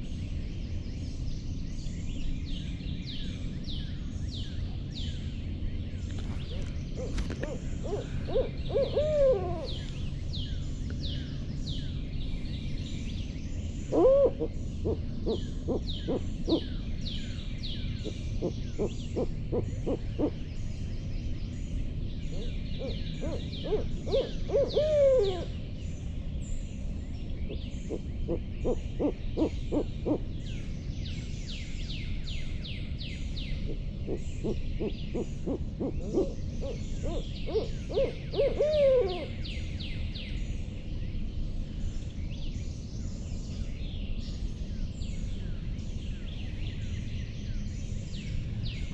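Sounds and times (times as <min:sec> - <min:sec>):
owl hooting: 0:06.2 - 0:10.3, 0:13.9 - 0:16.8, 0:18.0 - 0:20.4, 0:22.3 - 0:25.6, 0:27.9 - 0:30.3, 0:33.7 - 0:39.5.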